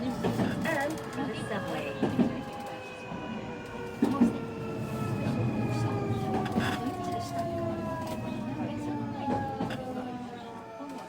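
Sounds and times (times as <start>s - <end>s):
rumble of train wheels: 0.0s - 11.0s.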